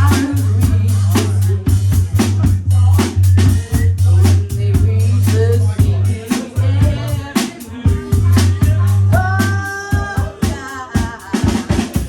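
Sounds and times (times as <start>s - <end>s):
deep sustained bass line: 0.0s - 7.2s
drum kit hits: 0.0s - 12.0s.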